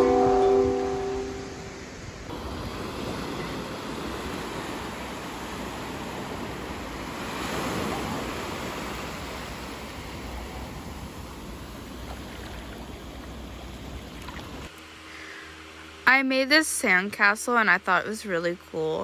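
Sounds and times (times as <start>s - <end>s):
ocean surf washing onto beach: 0.0s - 14.7s.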